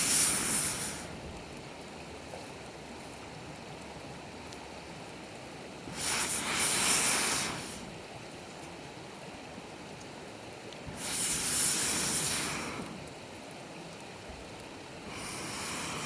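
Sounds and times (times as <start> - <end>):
hissing rush of air: 0.0 - 1.3, 5.8 - 8.1, 10.8 - 13.2, 15.0 - 16.0
campfire crackling: 0.0 - 16.0.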